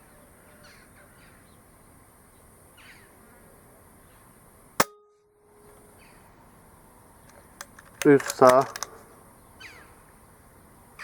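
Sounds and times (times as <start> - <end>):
faint bird chirps: 0.0 - 1.7, 2.3 - 4.4
air rifle shot crack: 4.8 - 5.1.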